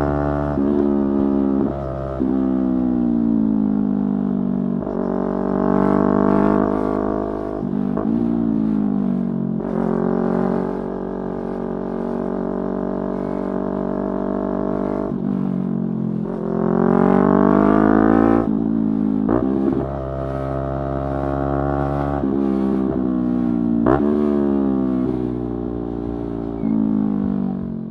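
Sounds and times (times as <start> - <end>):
motorcycle engine revving: 0.0 - 27.9.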